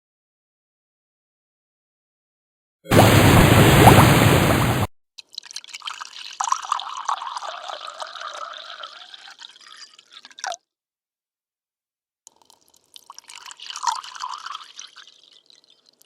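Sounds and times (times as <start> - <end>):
liquid pouring into a container: 5.2 - 10.6, 12.3 - 16.0.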